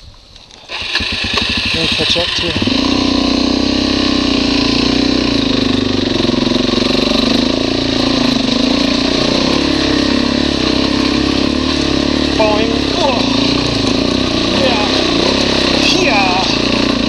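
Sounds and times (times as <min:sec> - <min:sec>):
motorcycle engine running: 0:00.7 - 0:17.0.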